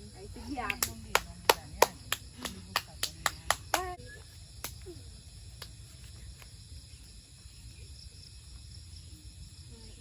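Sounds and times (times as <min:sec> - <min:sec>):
insects buzzing: 0:00.0 - 0:10.0.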